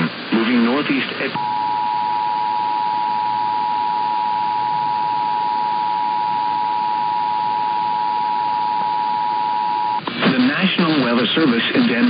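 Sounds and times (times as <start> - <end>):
radio static hiss: 0.0 - 12.0
emergency alert tone: 1.4 - 10.0.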